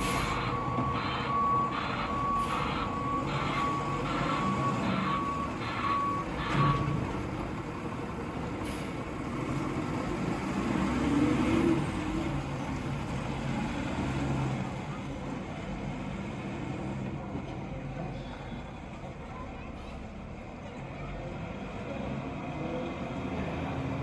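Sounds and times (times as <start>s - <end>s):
reversing alarm beeps: 0.0s - 7.1s
diesel engine rumbling: 0.0s - 24.0s.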